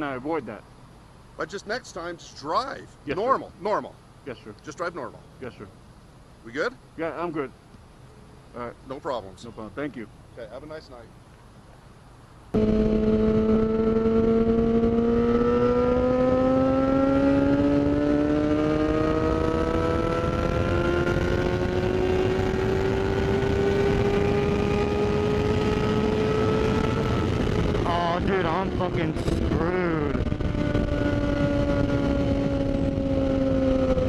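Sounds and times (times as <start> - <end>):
motorcycle engine accelerating: 12.5 - 34.0
wind rush: 20.3 - 34.0.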